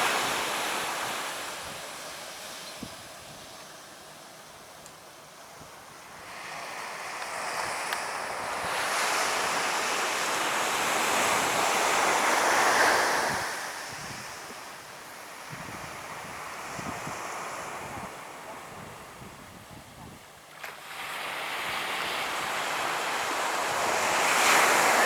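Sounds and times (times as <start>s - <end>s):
wind on microphone: 10.9s - 14.6s, 15.4s - 20.3s
surf wave breaking: 20.7s - 25.0s.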